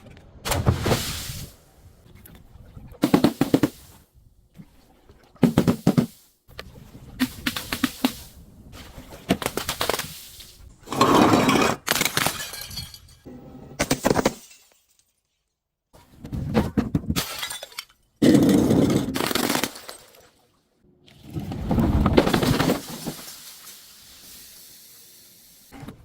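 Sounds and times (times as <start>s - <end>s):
glass bottles breaking: 11.8s - 15.2s, 17.1s - 18.1s, 18.8s - 20.3s.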